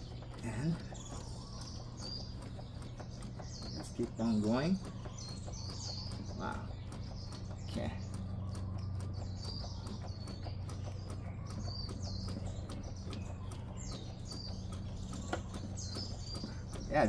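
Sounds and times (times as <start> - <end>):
birds chirping: 0.0 - 17.0
faint ticking: 0.0 - 17.0.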